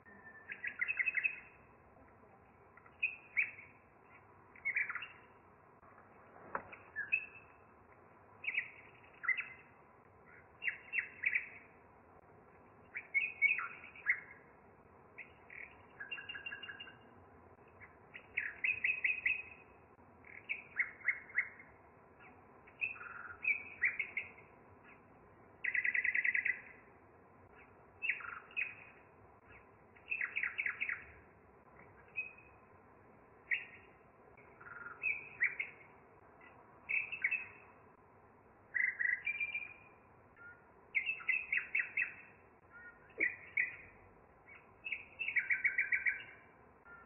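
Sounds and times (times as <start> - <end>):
bird trill: 0.0 - 1.7, 2.9 - 5.4, 6.7 - 7.6, 8.4 - 11.8, 12.9 - 14.5, 15.2 - 17.1, 17.8 - 25.0, 25.6 - 26.8, 27.5 - 31.2, 31.8 - 32.6, 33.5 - 37.9, 38.7 - 47.0
songbirds chirping: 0.0 - 47.0.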